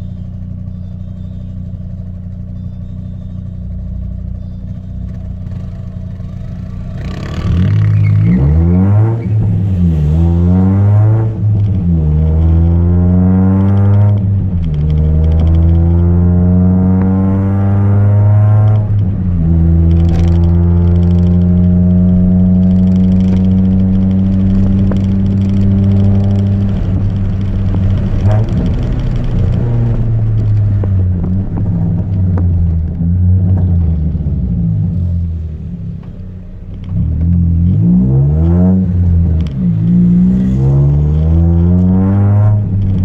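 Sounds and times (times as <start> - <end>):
car engine accelerating: 0.0 - 43.0
engine clatter: 10.8 - 43.0.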